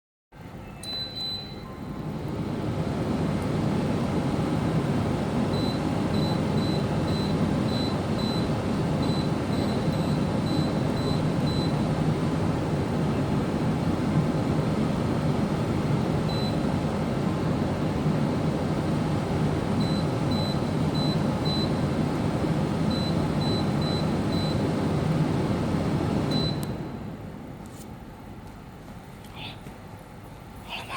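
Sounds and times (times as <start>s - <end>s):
dehumidifier whirring: 0.4s - 30.9s
control panel beeps: 0.6s - 2.0s, 26.3s - 26.7s.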